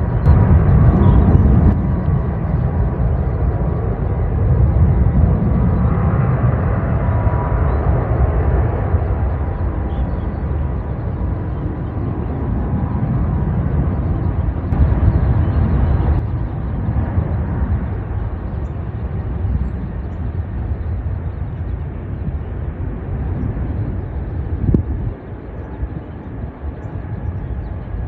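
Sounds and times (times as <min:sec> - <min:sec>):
jet engines rumbling: 0:00.0 - 0:28.0.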